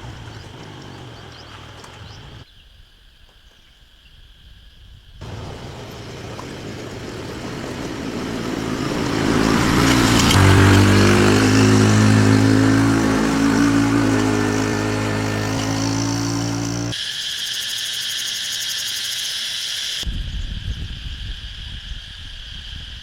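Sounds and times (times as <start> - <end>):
road noise: 0.0 - 2.4, 5.2 - 17.0
truck engine drone: 5.2 - 17.0.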